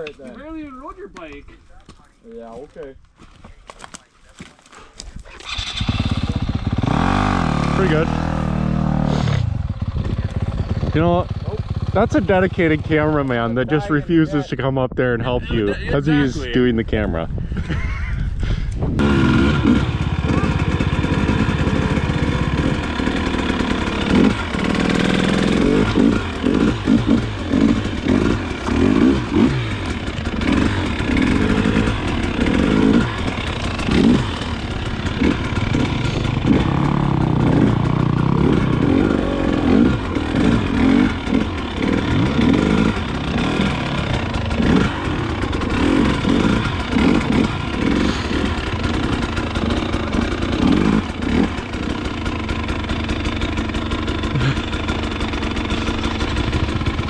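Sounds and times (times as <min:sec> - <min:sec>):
dirt bike engine revving: 0:05.3 - 0:13.9, 0:19.0 - 0:57.0.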